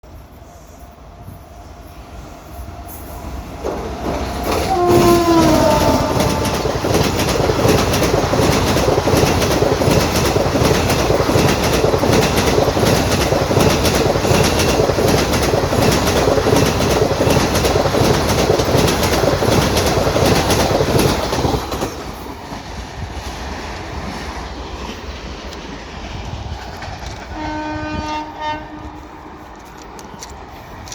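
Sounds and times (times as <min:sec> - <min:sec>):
train wheels clattering over rails: 0:03.2 - 0:28.2
train horn: 0:04.5 - 0:06.8, 0:27.3 - 0:29.3.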